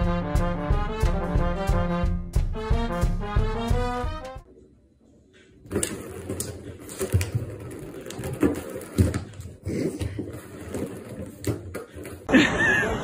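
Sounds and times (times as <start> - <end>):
plastic ball rattling around a track: 5.6 - 9.6.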